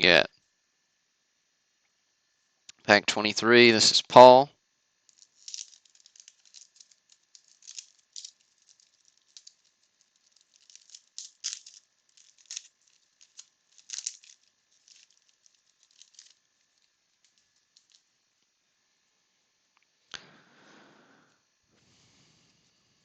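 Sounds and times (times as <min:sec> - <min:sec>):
wax paper wrapper crinkling: 0:05.0 - 0:18.5.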